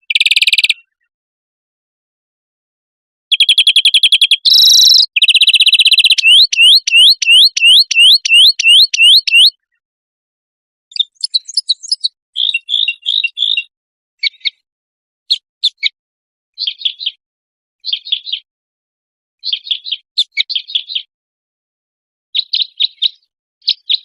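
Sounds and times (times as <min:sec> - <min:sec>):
bird chirps and twitters: 0:00.0 - 0:01.1, 0:03.3 - 0:09.8, 0:10.9 - 0:14.6, 0:15.3 - 0:16.0, 0:16.6 - 0:17.2, 0:17.8 - 0:18.5, 0:19.4 - 0:21.1, 0:22.4 - 0:24.0
songbird singing: 0:00.0 - 0:01.1, 0:03.3 - 0:09.6, 0:10.9 - 0:14.6, 0:22.4 - 0:24.0.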